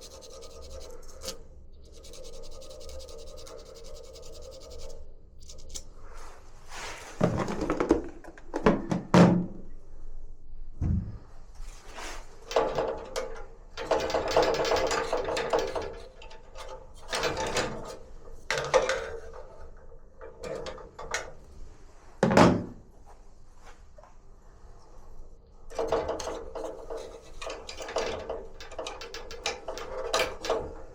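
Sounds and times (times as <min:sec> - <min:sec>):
scraping and rubbing: 0:00.0 - 0:07.7
knocks and thunks: 0:10.8 - 0:11.3.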